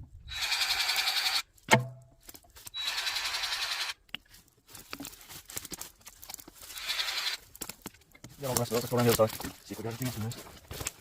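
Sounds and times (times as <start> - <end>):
sharp metal clunk: 1.7 - 2.1.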